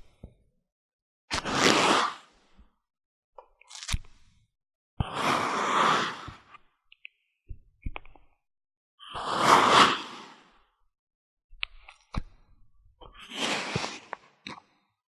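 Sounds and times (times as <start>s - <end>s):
crunchy strokes through sand: 5.1s - 6.4s, 9.2s - 10.5s, 13.2s - 14.2s.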